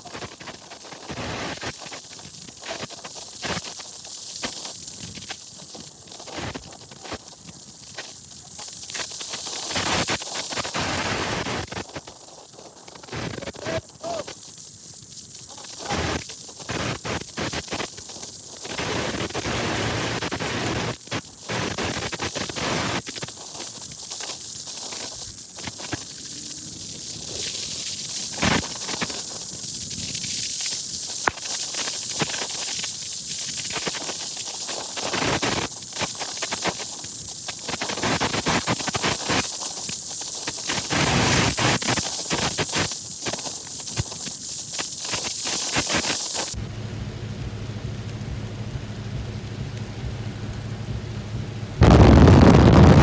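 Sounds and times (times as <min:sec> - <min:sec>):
low water rumble: 0:46.6 - 0:53.0.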